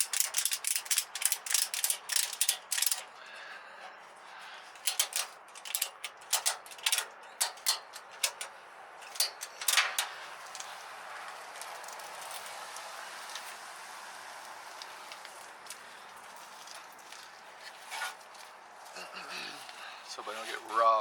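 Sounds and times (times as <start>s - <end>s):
ratchet-like mechanical clicking: 0.0s - 3.2s, 4.8s - 10.7s.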